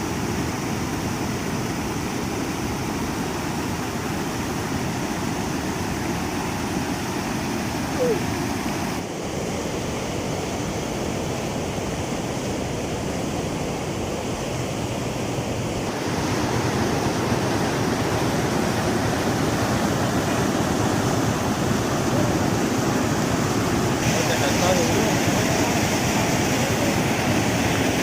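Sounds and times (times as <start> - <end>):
floodwater rushing: 0.0 - 28.0.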